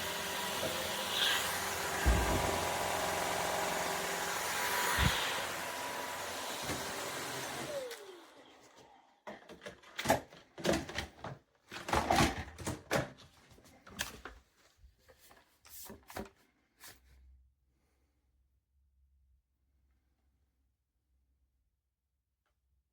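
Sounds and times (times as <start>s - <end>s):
vacuum motor winding down: 0.0s - 8.9s
clicks and knocks of vacuum handling: 9.3s - 13.3s.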